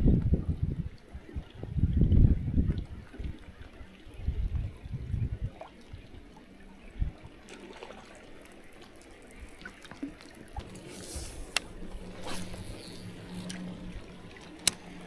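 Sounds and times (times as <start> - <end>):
sharp click: 10.6 - 15.0
small ticks: 10.6 - 15.0.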